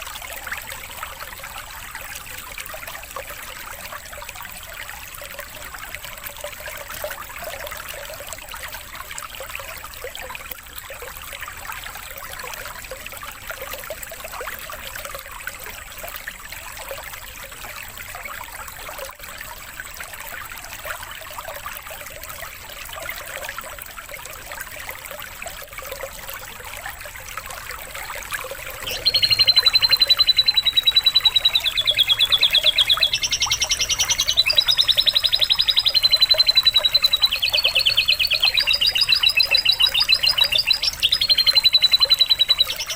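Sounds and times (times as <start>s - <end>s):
trickling water: 0.0s - 42.9s
canary trilling: 28.7s - 42.9s.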